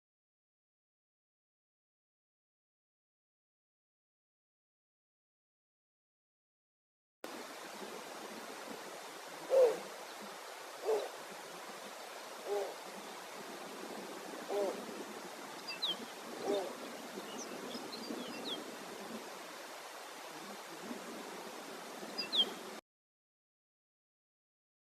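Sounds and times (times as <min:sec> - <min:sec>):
faint steady hiss: 0:07.3 - 0:22.8
owl hooting: 0:09.4 - 0:09.9, 0:10.8 - 0:11.2, 0:12.4 - 0:12.8, 0:14.5 - 0:14.8, 0:15.9 - 0:16.8.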